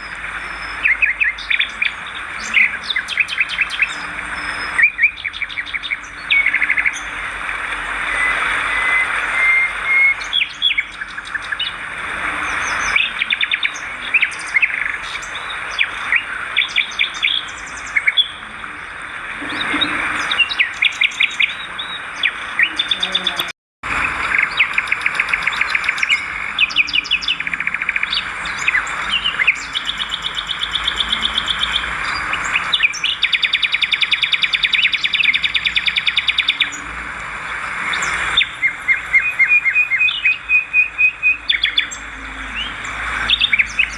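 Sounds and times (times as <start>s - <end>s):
swiftlets twittering: 28.1s - 43.9s.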